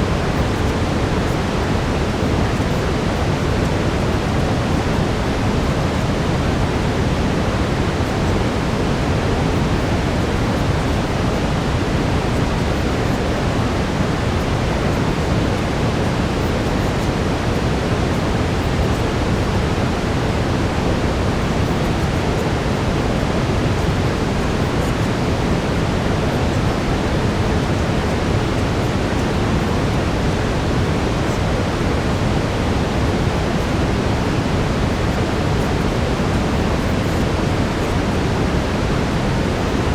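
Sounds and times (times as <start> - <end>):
brown noise hiss: 0.0 - 39.9.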